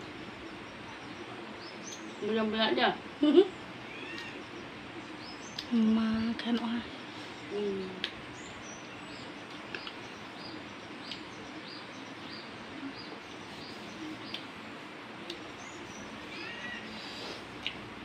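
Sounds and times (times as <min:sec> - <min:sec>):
small bird chirping: 0:00.0 - 0:14.6, 0:15.2 - 0:17.8
background hiss: 0:00.0 - 0:18.0.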